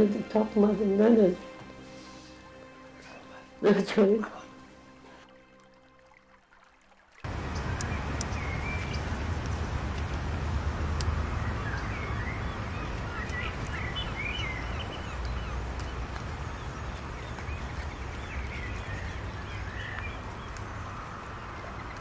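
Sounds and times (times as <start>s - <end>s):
birds chirping: 7.3s - 10.2s, 11.0s - 22.0s
low rumbling background noise: 7.3s - 22.0s.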